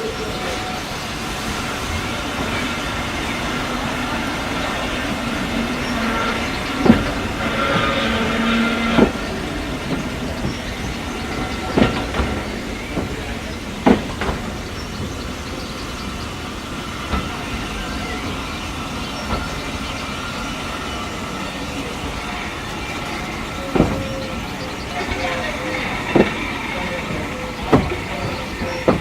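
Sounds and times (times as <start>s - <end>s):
train rumbling on rails: 0.0s - 29.0s
sharp knocks of wheels: 25.0s - 29.0s.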